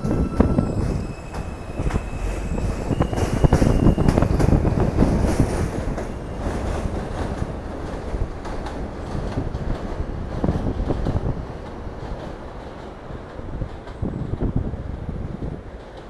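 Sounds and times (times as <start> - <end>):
high wheel squeal: 0.0 - 4.8
subway train wheels knocking: 0.0 - 16.0.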